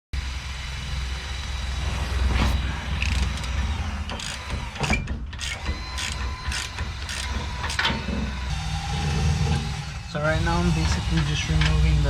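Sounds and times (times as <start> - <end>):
low rumble: 0.2 - 4.8.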